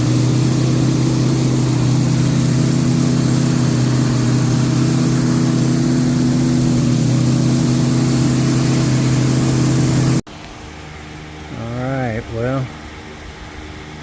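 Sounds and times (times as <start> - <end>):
engine running at fast idle: 0.0 - 10.3.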